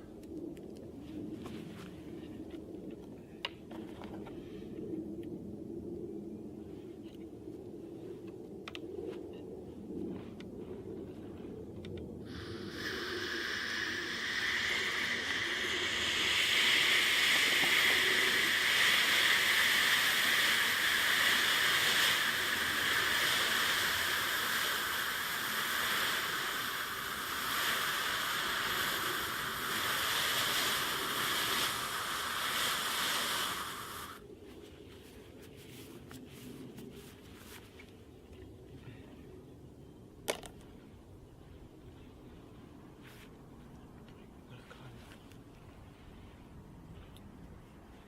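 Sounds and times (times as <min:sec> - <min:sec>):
loud steady hiss: 0:12.2 - 0:34.2.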